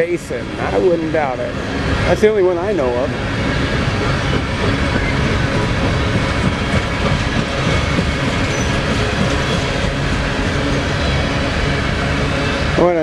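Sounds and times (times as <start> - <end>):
train wheels rumbling and clattering: 0.0 - 13.0
faint high wheel squeal: 7.7 - 9.8.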